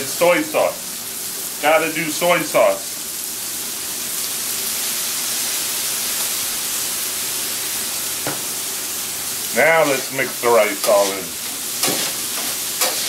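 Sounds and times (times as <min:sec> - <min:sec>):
food sizzling on a griddle: 0:00.0 - 0:13.0.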